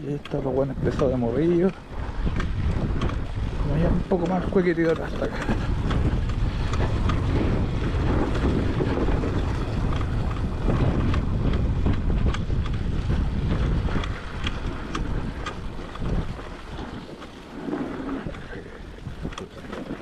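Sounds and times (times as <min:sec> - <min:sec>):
wind buffeting microphone: 0:00.0 - 0:20.0
sharp clicks and knocks: 0:00.1 - 0:03.2.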